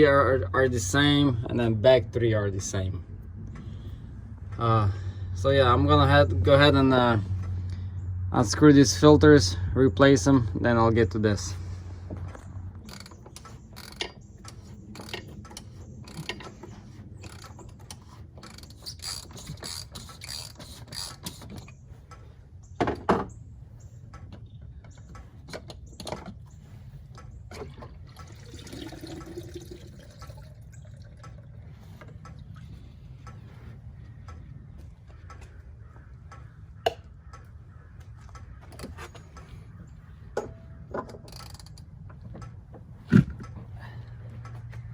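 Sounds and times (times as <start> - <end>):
steady low hum: 0.0 - 44.9
ratchet wrench clicking: 17.2 - 21.7.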